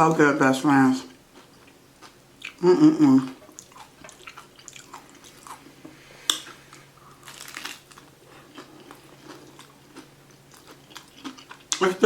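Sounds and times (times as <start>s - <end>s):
crunchy chewing: 3.2s - 11.9s
crunchy taco shell bite: 7.2s - 11.8s.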